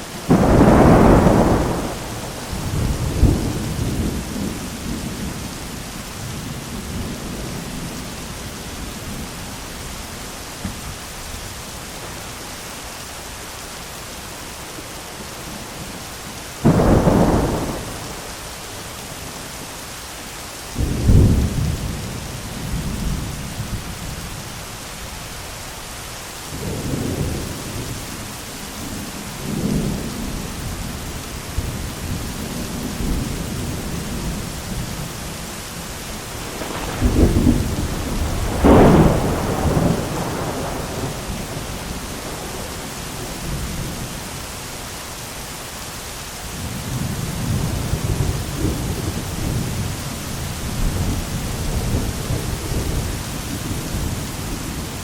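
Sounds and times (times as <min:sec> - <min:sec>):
heavy rain hiss: 0:00.0 - 0:55.0
thunderclaps: 0:00.3 - 0:05.4, 0:16.6 - 0:18.8, 0:36.1 - 0:44.0
rolling thunder rumble: 0:00.3 - 0:10.0, 0:16.6 - 0:18.9, 0:28.8 - 0:44.2.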